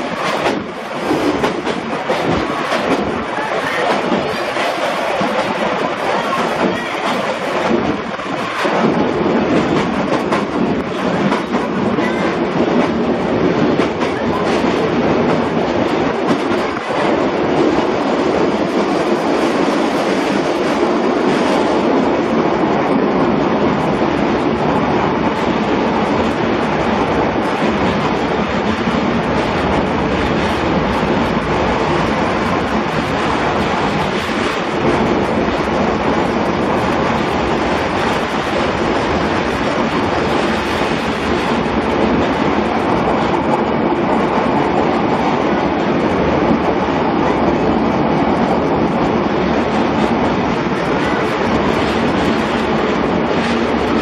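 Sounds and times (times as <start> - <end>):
train wheels rumbling in tunnel: 0.0 - 54.0.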